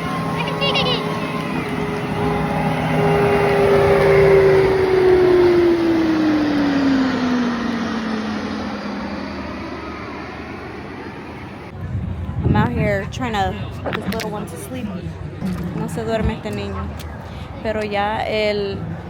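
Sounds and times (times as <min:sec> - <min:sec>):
jet flying past: 0:00.0 - 0:12.4.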